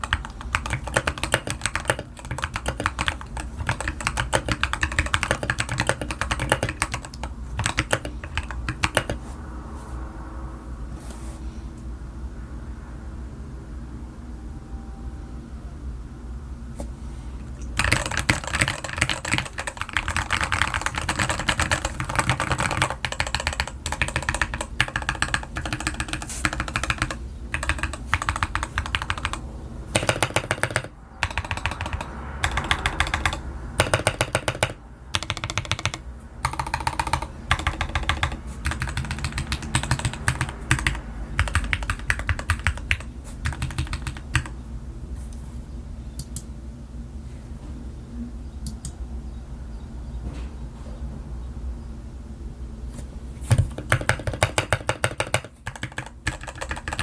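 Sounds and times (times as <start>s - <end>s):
fast mechanical keyboard typing: 0.0s - 9.2s, 17.6s - 44.6s, 53.5s - 57.0s
low steady hum: 0.0s - 57.0s.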